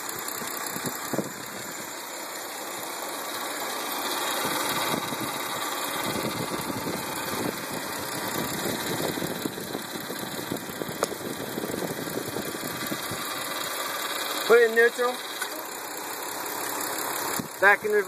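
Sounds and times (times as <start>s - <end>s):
car engine idling: 0.0s - 18.0s
engine ticking clatter: 0.0s - 18.0s
sharp click: 11.0s - 11.2s.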